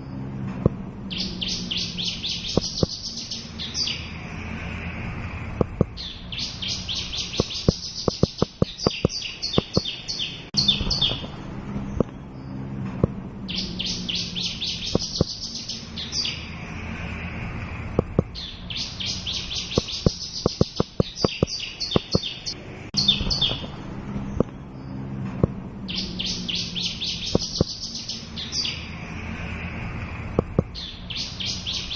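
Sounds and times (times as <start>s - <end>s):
bird chirps and trills: 0.0s - 31.9s
sharp clicks: 5.6s - 6.0s, 7.3s - 10.0s, 19.7s - 22.6s.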